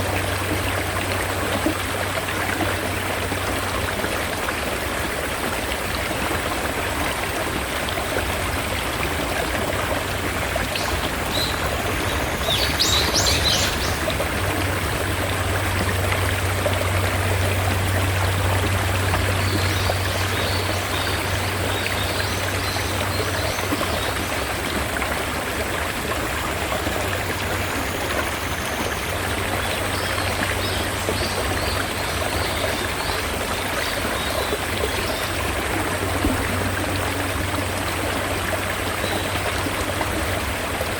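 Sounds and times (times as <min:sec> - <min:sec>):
stream water rushing: 0:00.0 - 0:40.9
bird chirping: 0:10.8 - 0:14.0.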